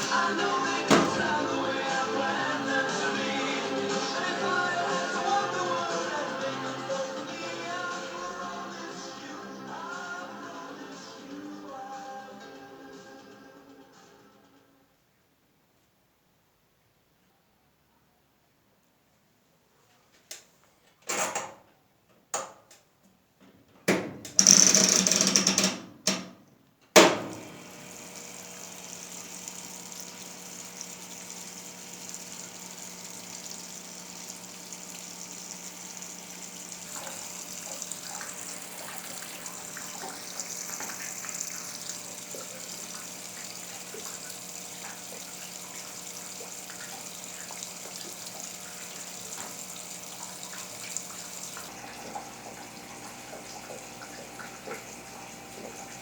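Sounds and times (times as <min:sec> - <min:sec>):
water running into machine: 0:00.0 - 0:07.5, 0:24.4 - 0:25.6, 0:27.1 - 0:56.0
washing machine knocks and clicks: 0:00.9 - 0:01.5, 0:27.0 - 0:27.5
low machine hum: 0:27.3 - 0:56.0.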